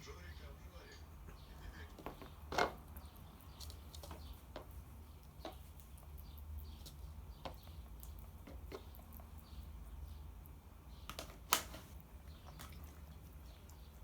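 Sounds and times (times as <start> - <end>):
bird beak tapping: 1.9 - 12.8.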